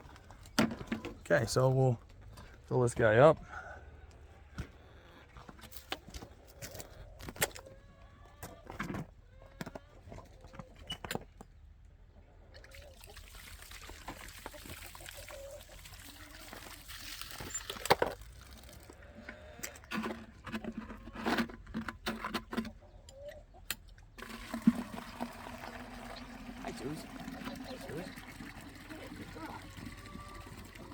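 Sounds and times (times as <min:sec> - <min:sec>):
water running into container: 0:12.6 - 0:19.0, 0:24.2 - 0:30.9
container knocking and clunking: 0:24.2 - 0:30.9.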